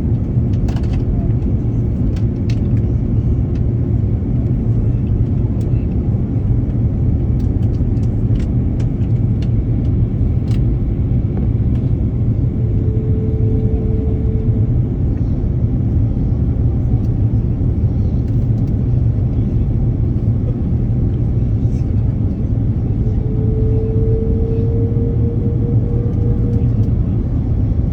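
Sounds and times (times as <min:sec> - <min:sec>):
airplane rumble: 0:00.0 - 0:27.9.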